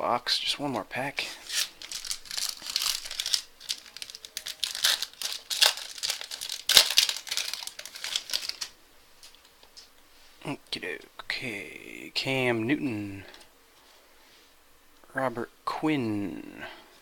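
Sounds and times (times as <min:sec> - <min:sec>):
wrapper crinkling and tearing: 0:01.4 - 0:09.5.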